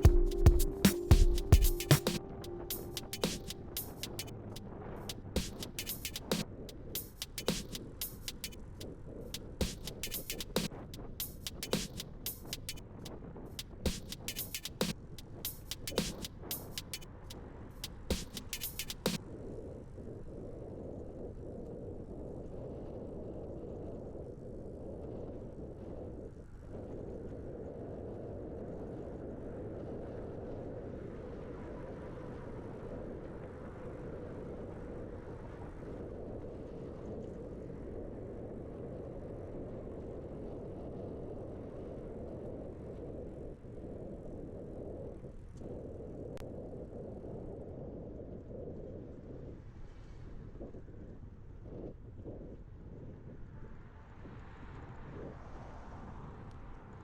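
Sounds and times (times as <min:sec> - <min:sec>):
wind rushing on microphone: 0:19.2 - 0:57.0.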